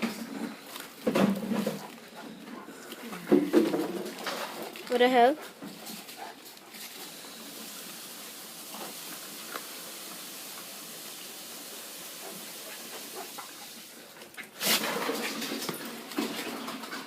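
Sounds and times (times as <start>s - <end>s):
steady hiss: 5.5s - 15.5s.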